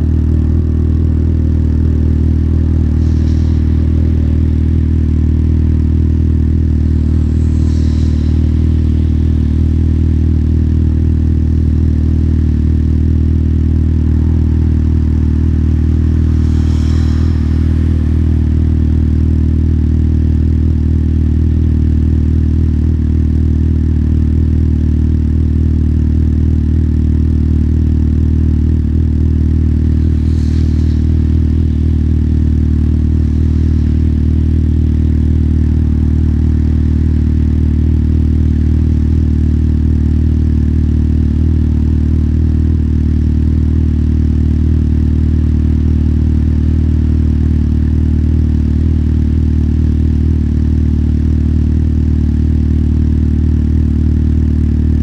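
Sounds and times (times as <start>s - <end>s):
motorcycle engine running: 0.0s - 55.0s
brief hisses: 2.2s - 12.6s, 14.4s - 20.6s, 29.7s - 39.0s.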